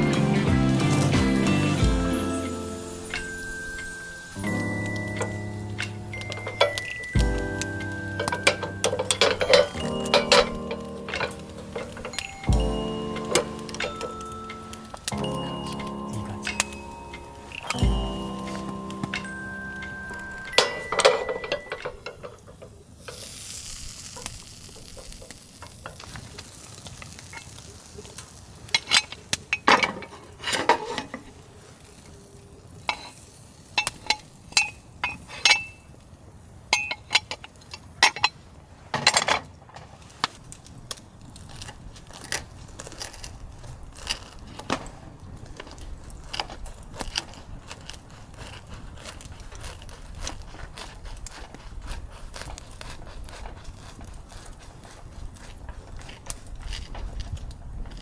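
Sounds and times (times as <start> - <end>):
metal cookware clinking: 0.0 - 23.3, 33.8 - 35.8, 36.8 - 38.4.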